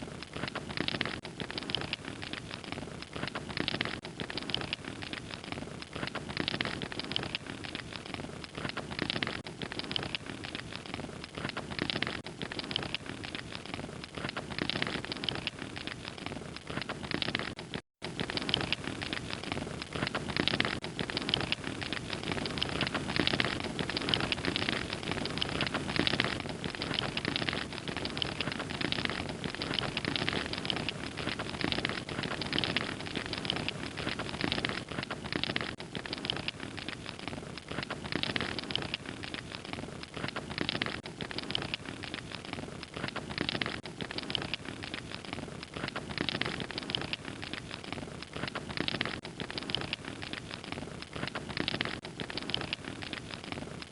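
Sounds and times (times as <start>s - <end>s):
wood fire crackling and popping: 0.0s - 53.9s.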